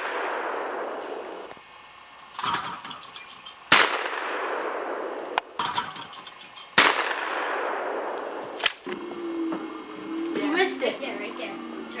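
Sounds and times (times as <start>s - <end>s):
shotgun shots ringing out: 0.0s - 1.6s, 3.7s - 6.1s, 6.8s - 8.9s
metallic clank: 2.3s - 3.6s, 5.6s - 6.8s.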